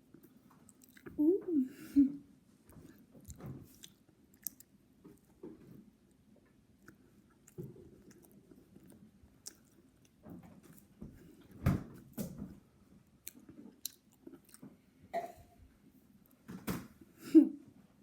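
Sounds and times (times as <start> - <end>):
person biting and chewing: 3.2 - 4.7, 6.8 - 10.2, 13.2 - 14.6.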